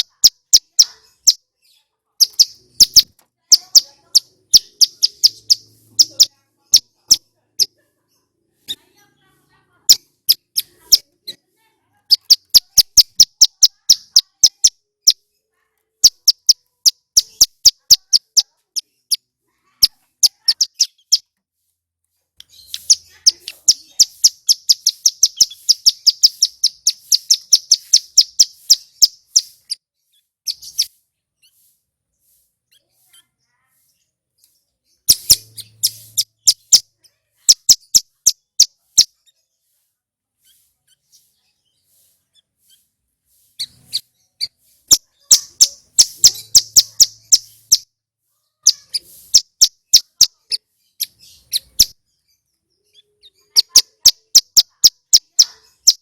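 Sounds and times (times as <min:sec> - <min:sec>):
bird singing high trills: 0:02.2 - 0:06.9, 0:22.5 - 0:29.8, 0:43.6 - 0:47.9.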